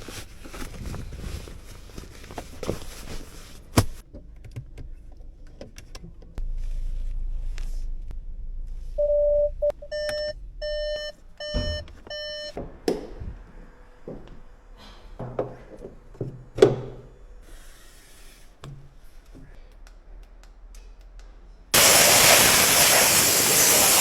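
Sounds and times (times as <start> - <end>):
low steady hum: 4.6 - 15.2.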